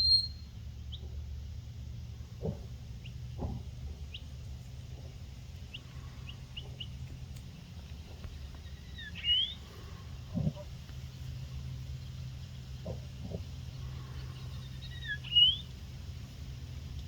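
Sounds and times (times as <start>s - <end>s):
bird call with rising whistle: 0.0s - 0.5s, 8.6s - 9.6s, 14.4s - 15.7s
birds chirping: 0.0s - 1.4s, 2.2s - 17.0s
steady low rumble: 0.0s - 17.0s.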